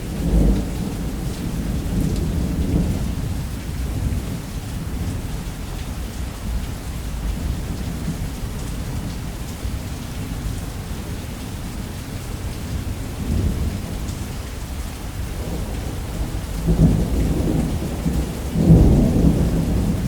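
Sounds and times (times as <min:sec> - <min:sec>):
deep rolling thunder: 0:00.0 - 0:05.2, 0:13.0 - 0:14.4, 0:15.1 - 0:20.0
heavy rain on a roof: 0:00.0 - 0:20.0.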